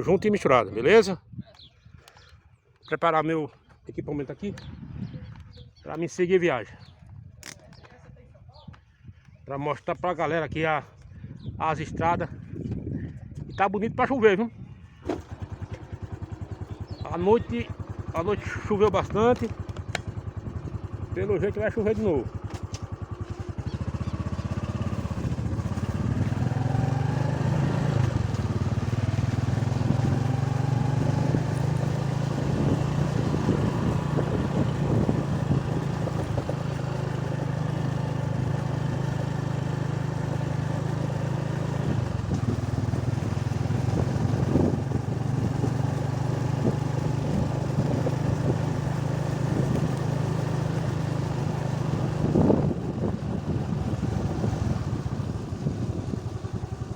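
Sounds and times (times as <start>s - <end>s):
motorcycle engine running: 14.8s - 56.9s.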